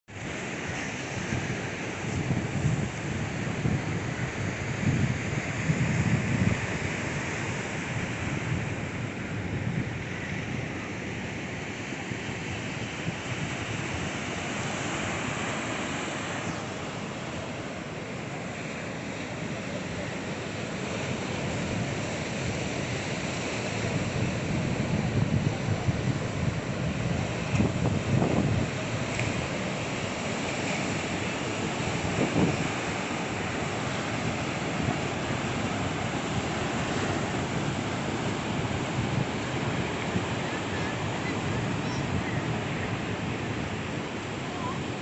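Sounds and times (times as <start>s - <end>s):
wind buffeting microphone: 0.6s - 11.5s, 20.8s - 45.0s
waves washing against rocks: 11.4s - 45.0s.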